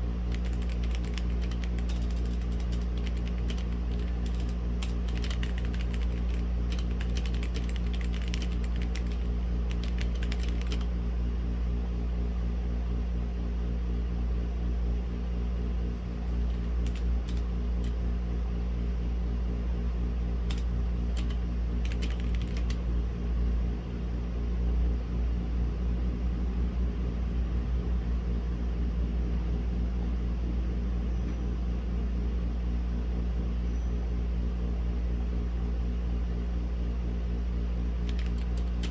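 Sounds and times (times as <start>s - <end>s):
steady low hum: 0.0s - 11.2s
typing on mechanical keyboard: 0.3s - 11.0s, 16.0s - 18.0s, 20.5s - 22.9s, 38.0s - 38.9s.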